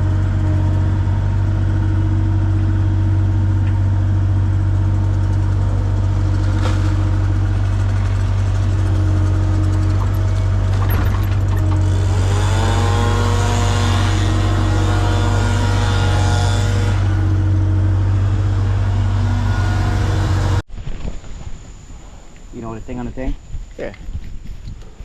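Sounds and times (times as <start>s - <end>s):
large machine engine revving: 5.6s - 20.6s.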